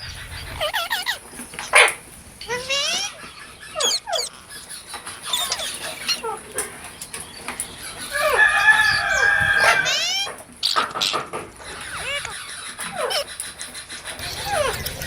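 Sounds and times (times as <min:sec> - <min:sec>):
parrots squawking: 0:00.0 - 0:15.0
parrot screech: 0:00.6 - 0:03.2, 0:03.8 - 0:04.3, 0:08.2 - 0:13.6, 0:14.2 - 0:15.0.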